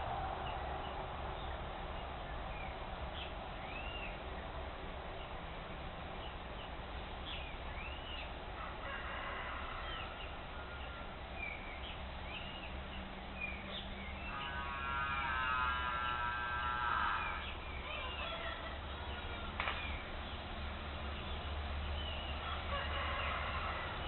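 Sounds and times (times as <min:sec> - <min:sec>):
harsh buzzy bird call: 0:14.1 - 0:18.6.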